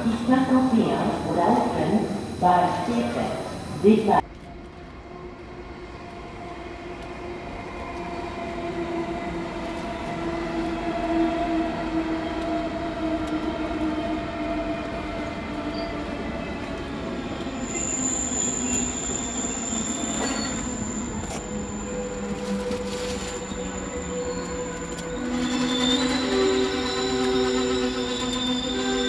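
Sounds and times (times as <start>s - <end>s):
electric train drive whine: 0.0s - 4.2s
high steady squeal: 17.6s - 29.0s.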